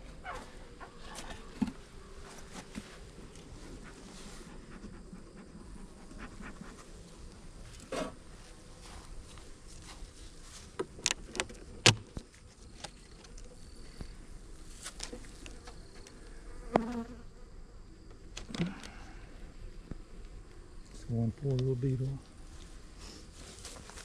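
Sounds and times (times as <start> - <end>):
honeybees buzzing: 0.0 - 9.8
hive clicks and knocks: 10.7 - 13.4.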